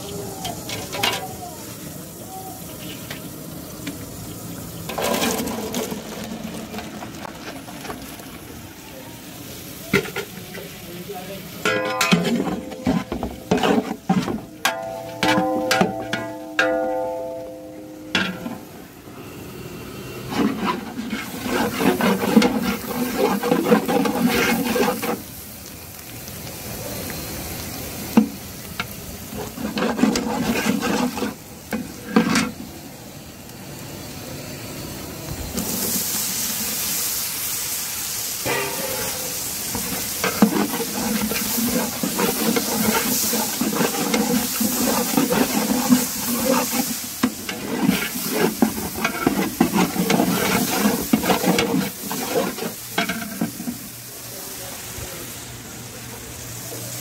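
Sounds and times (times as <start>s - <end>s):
loud sizzle of tomatoes in oil: 0.0s - 57.0s
onions frying in oil: 0.0s - 57.0s
ladle scraping metal pot: 4.9s - 6.2s, 11.6s - 18.8s, 20.2s - 25.2s, 29.3s - 32.6s, 38.4s - 53.8s.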